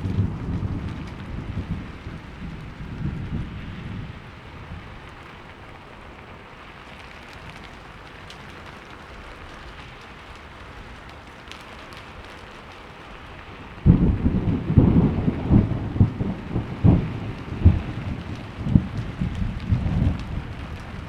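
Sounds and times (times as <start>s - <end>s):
rolling thunder: 0.0s - 5.2s, 13.7s - 21.0s
heavy rain: 0.0s - 21.0s.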